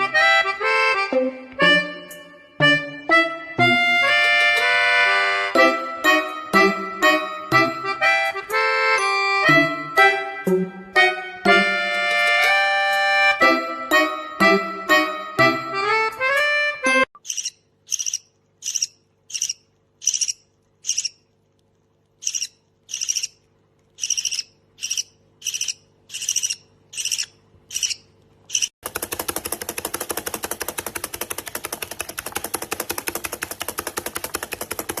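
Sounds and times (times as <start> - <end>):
bird buzzing rattle: 17.2 - 21.2, 22.2 - 23.4, 24.0 - 35.0
bird chirping: 17.2 - 21.2, 22.2 - 23.4, 24.0 - 28.7.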